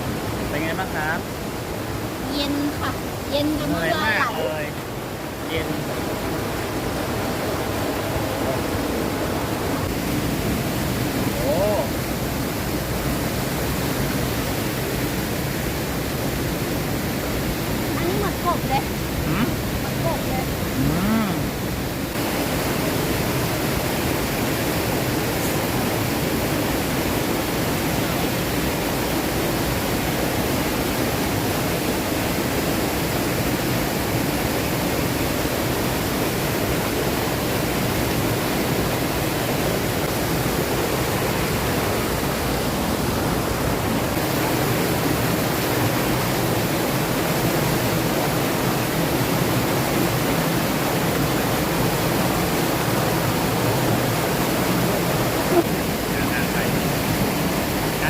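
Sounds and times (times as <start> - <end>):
water rushing over rocks: 0.0 - 58.0.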